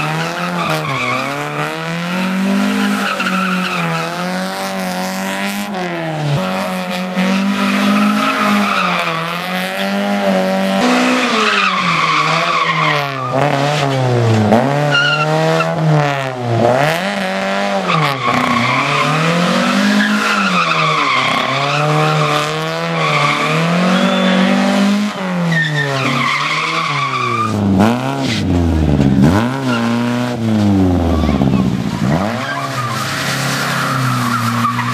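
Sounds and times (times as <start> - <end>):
car engine revving hard: 0.0 - 34.9
tyres squealing: 17.9 - 24.6.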